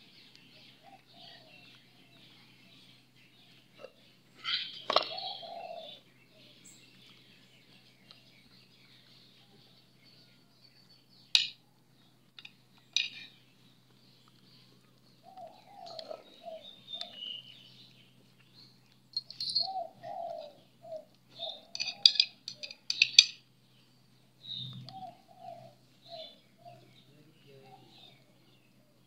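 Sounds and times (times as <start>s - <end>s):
birds chirping: 0.0s - 29.0s
dove cooing: 0.8s - 1.7s, 3.8s - 6.1s, 15.2s - 17.2s, 19.4s - 22.8s, 24.8s - 28.6s.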